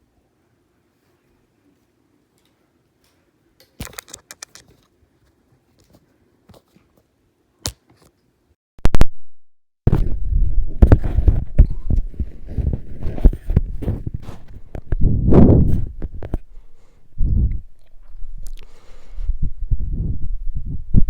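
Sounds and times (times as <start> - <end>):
plastic parts clicking and knocking: 3.7 - 4.7
rustling and scraping: 9.9 - 16.6.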